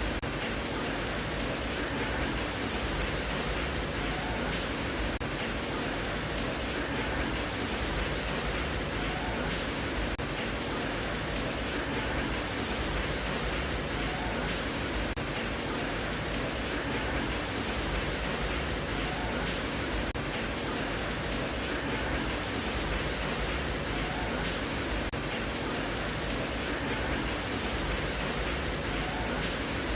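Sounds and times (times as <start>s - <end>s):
steady rain hiss: 0.0s - 29.9s.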